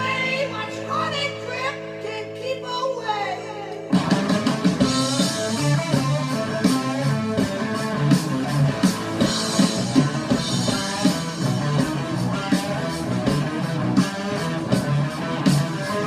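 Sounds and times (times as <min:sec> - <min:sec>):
rock guitar riff: 0:00.0 - 0:02.1, 0:03.4 - 0:16.0
drum kit: 0:03.6 - 0:16.0.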